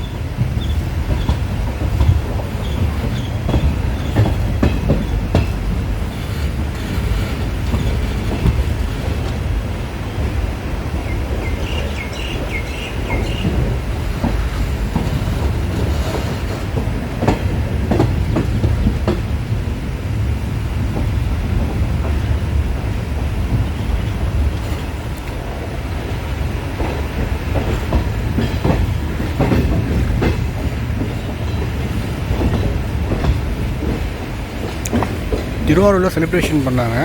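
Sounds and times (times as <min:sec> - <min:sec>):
train rumbling: 0:00.0 - 0:37.0
train wheels clacking on rail joints: 0:00.0 - 0:37.0.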